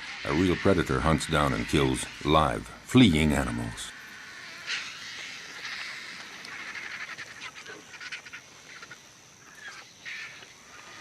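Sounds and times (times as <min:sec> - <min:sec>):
vultures squawking: 0:00.0 - 0:11.0.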